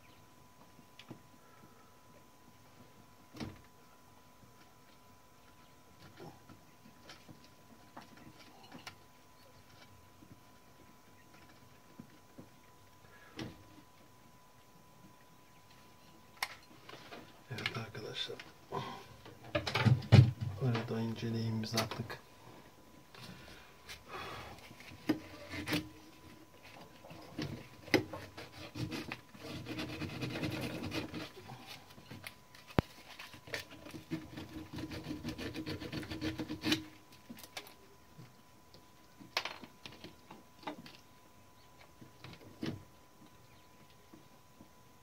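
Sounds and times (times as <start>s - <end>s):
hand tool scraping metal: 28.1s - 31.6s.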